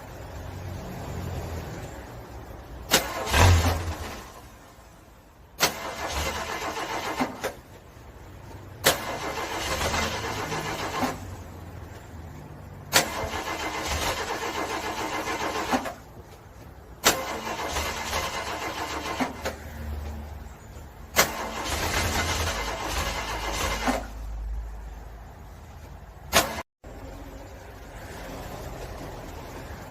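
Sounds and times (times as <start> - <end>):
car engine cranking on starter: 2.8 - 4.6, 5.6 - 7.7, 8.8 - 11.4, 12.9 - 16.1, 17.0 - 19.6, 21.1 - 24.3, 26.3 - 26.6.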